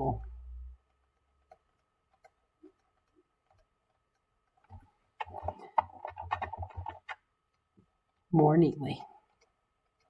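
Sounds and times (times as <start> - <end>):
pen tapping while writing: 4.6 - 7.2.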